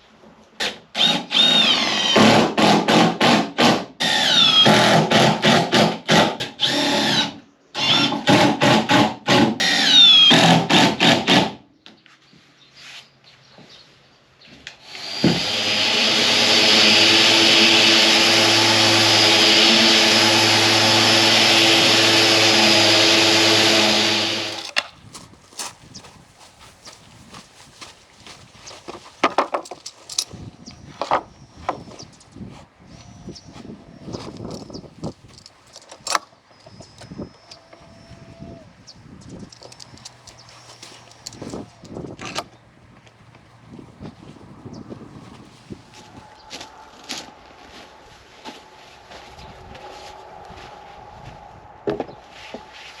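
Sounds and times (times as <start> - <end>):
drill motor in short bursts: 1.0 - 2.4, 14.8 - 24.8
electric tool running steadily: 14.8 - 24.8.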